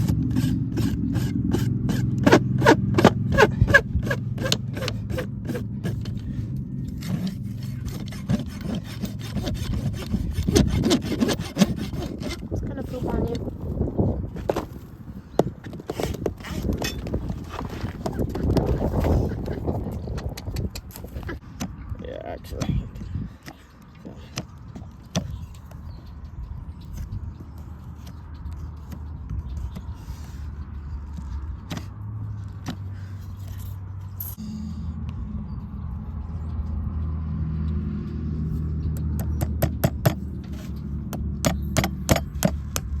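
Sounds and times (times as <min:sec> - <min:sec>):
rasp filing a hoof: 0:00.0 - 0:13.5, 0:15.4 - 0:21.4, 0:38.5 - 0:43.0
low engine-like hum: 0:00.0 - 0:15.6, 0:16.7 - 0:43.0.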